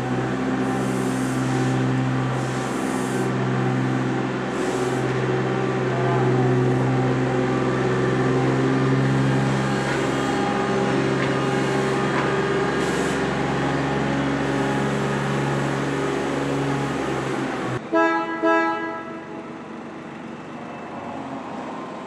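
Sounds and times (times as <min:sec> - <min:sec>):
machine hum with drone: 0:00.0 - 0:18.0
train horn toots: 0:17.9 - 0:19.5.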